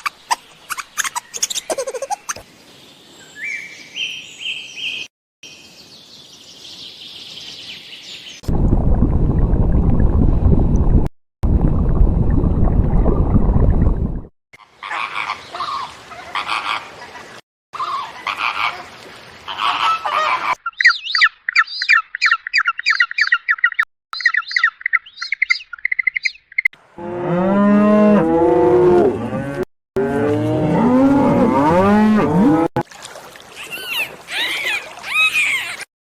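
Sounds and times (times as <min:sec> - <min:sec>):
rapid high bird chirping: 0:00.0 - 0:02.4, 0:20.6 - 0:26.7
raspy animal calls: 0:33.6 - 0:35.9.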